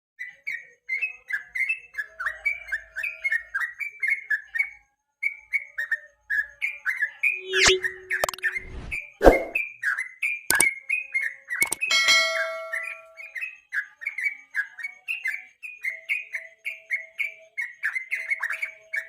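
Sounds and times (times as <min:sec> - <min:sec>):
bird singing bubbly whistled notes: 0:07.2 - 0:09.6
sharp loud clicks: 0:11.6 - 0:11.9.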